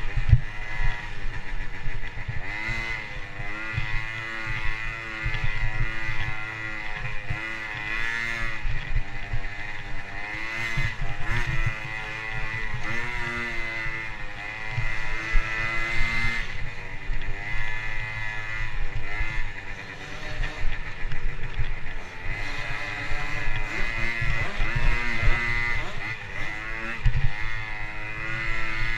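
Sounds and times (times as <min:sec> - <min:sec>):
dirt bike engine revving: 0:00.0 - 0:28.9.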